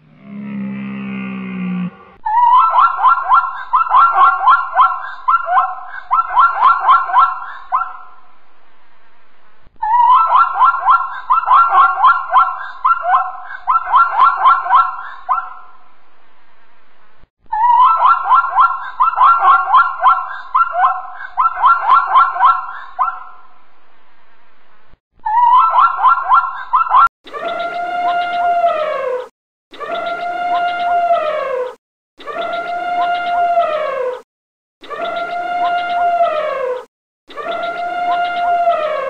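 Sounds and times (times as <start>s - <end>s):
zebra yelping barks: 2.4s - 8.1s, 10.0s - 15.6s, 17.7s - 23.3s, 25.4s - 27.1s.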